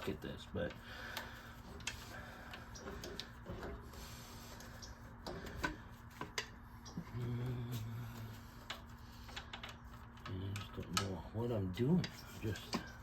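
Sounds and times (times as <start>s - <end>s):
hand tools clicking and tapping: 0.0s - 3.9s, 4.5s - 7.0s
low hum: 0.0s - 10.7s.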